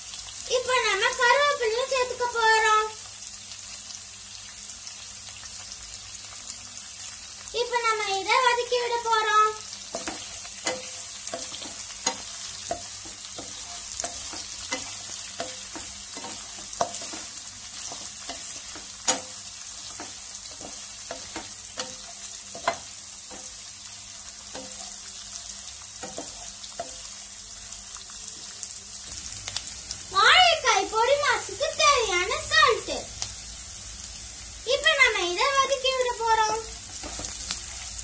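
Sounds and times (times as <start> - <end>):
onions sizzling in oil: 0.0 - 38.0
spatula knocking on pan: 9.9 - 23.6, 26.0 - 27.0.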